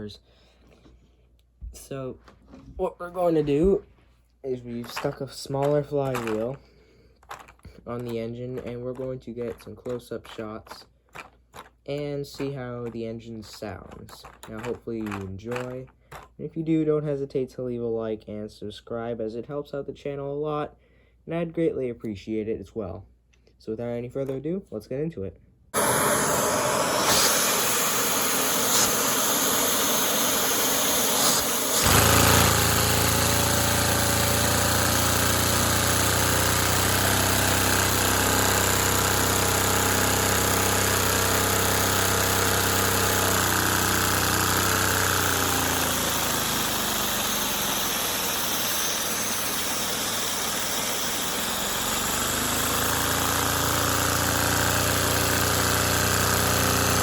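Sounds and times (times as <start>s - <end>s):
model engine whirring and clattering: 4.8s - 6.6s, 7.2s - 16.4s, 25.8s - 57.0s.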